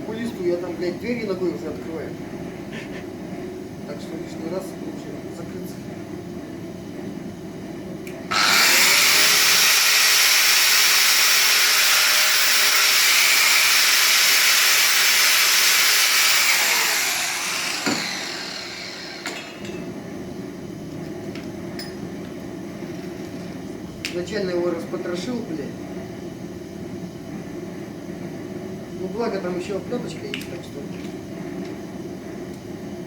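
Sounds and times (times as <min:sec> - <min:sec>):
grinder spinning down whine: 0:08.3 - 0:19.5
angle grinder cutting steel cable: 0:08.3 - 0:19.7.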